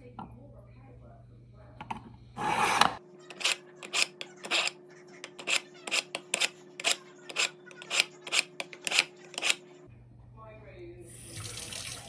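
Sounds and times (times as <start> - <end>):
knife scraping through sharpener: 2.4 - 9.6.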